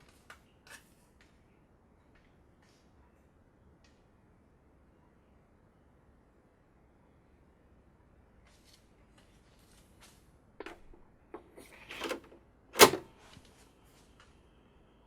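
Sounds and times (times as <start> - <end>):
small mechanical clicks: 10.6 - 13.0
sharp mechanical clack: 10.6 - 13.1.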